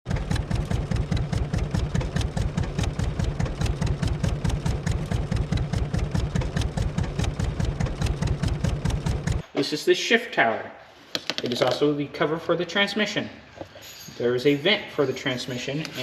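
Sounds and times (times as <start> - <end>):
tractor engine idling: 0.0 - 9.5.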